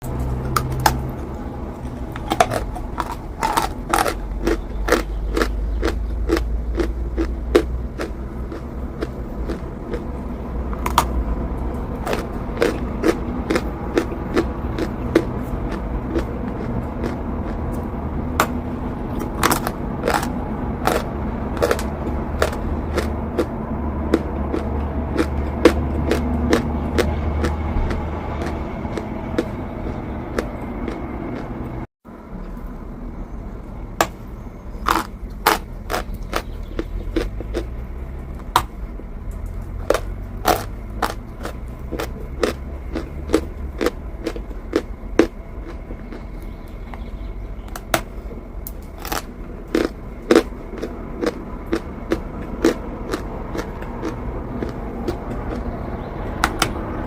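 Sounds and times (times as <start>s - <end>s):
low rumble: 0.0s - 57.0s
chalk being bitten and chewed: 1.8s - 17.8s, 18.4s - 31.5s, 34.9s - 37.8s, 39.6s - 46.3s, 48.7s - 55.8s.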